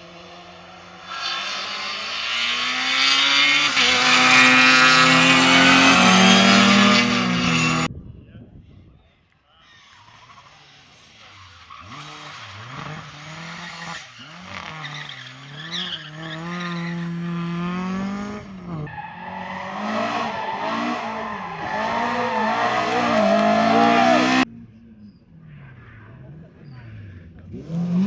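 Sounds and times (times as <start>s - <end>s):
rally car engine revving: 0.0s - 7.9s, 9.7s - 28.0s
tyre squeal: 1.0s - 7.9s, 9.6s - 24.4s.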